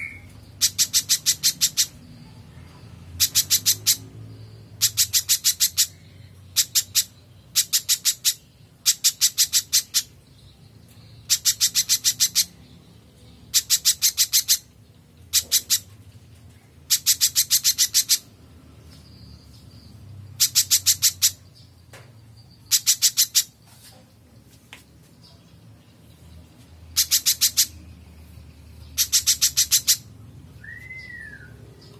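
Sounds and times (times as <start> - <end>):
bird chattering calls: 0.0 - 2.0, 3.2 - 4.1, 4.8 - 10.2, 11.2 - 12.7, 13.4 - 16.0, 16.8 - 18.3, 20.4 - 21.6, 22.6 - 23.6, 26.9 - 27.8, 28.8 - 31.9.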